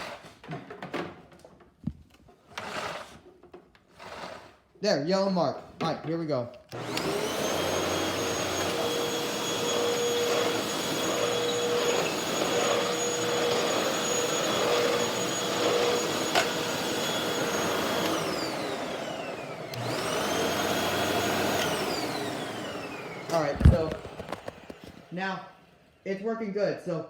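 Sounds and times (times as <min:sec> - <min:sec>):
vacuum cleaner whine: 0:06.7 - 0:26.0.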